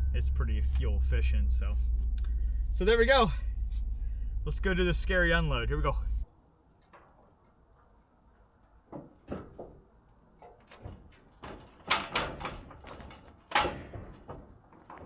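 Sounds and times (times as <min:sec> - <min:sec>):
metal tank knocks and clunks: 0:08.9 - 0:15.0.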